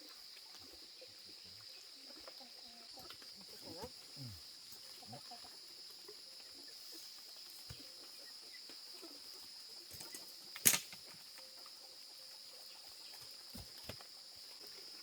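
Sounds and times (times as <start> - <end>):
sharp knock or rustle: 10.6 - 11.1.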